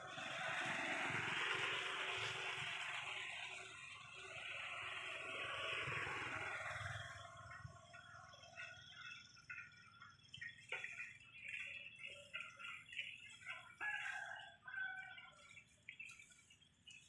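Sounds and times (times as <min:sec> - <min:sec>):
faint birds chirping: 0:06.4 - 0:17.0.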